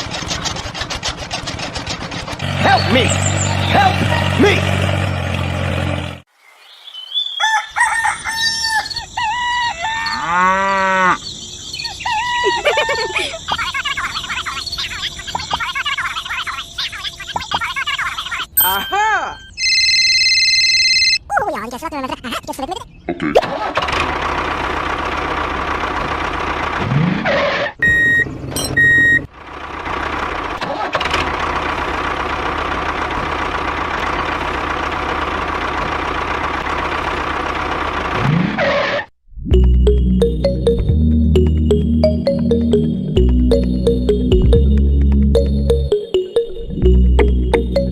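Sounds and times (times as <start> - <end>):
small tractor engine running: 0.0 - 6.2, 23.6 - 27.0, 27.8 - 38.6
chickens calling: 7.0 - 18.9
rooster crowing: 7.2 - 11.2.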